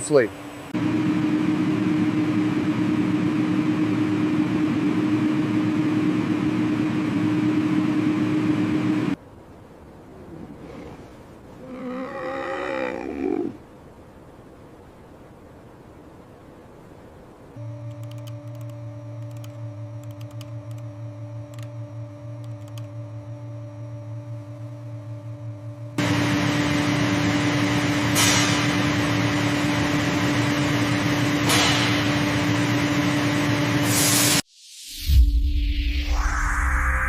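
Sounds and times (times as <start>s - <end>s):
strong steady hiss: 0.0s - 0.8s
mechanical hum: 0.0s - 37.0s
faint clicks: 17.8s - 20.9s, 21.5s - 21.7s, 22.4s - 22.9s.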